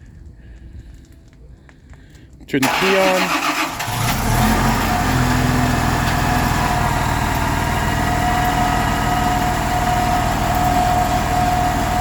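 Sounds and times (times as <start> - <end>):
bus engine idling: 2.6 - 12.0
steady whine: 4.7 - 12.0.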